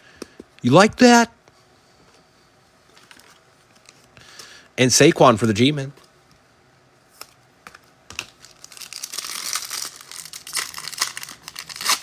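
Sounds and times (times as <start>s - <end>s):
foil wrapper crinkling: 8.1s - 12.0s.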